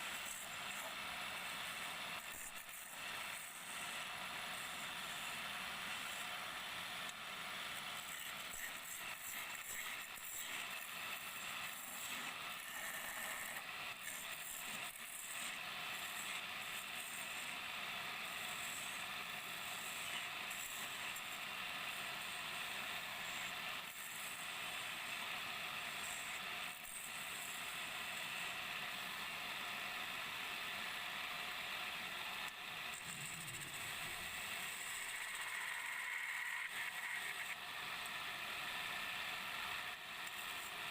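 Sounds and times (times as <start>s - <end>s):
wood lathe tool scraping: 7.7s - 17.6s, 18.2s - 28.6s, 32.9s - 38.1s.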